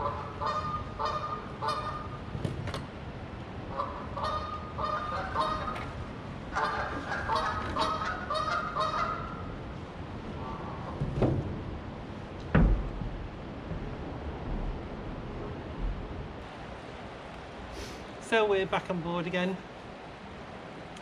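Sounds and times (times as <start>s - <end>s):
geese honking: 0.0s - 2.2s, 3.7s - 9.6s.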